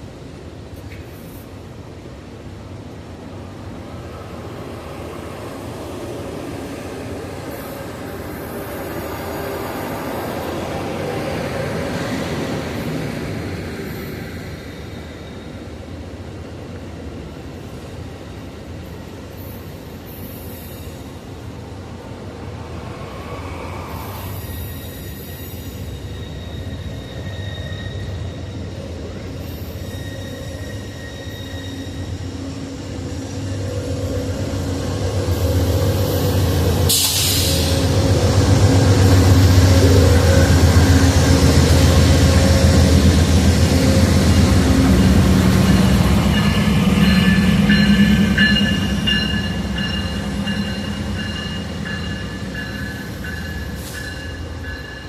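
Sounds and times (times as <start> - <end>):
train moving on rails: 0.0 - 55.0
locomotive engine humming: 31.8 - 55.0
loud hiss of air: 36.0 - 39.7, 53.7 - 54.3.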